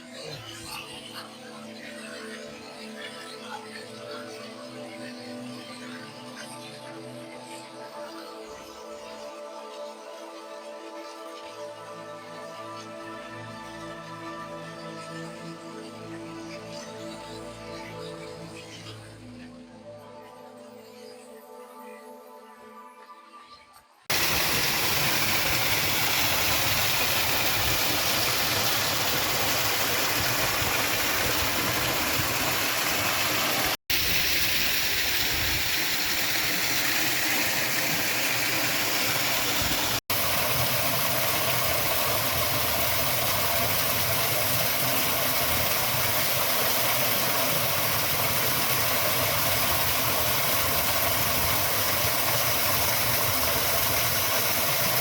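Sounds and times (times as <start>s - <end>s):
faint music: 0.0s - 24.0s
waterfall rushing: 24.1s - 55.0s.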